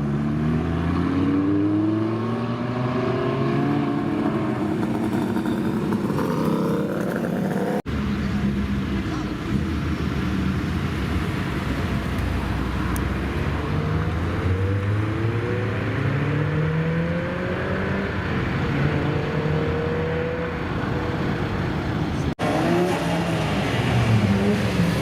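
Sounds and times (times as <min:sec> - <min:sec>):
engine revving: 0:13.4 - 0:20.6.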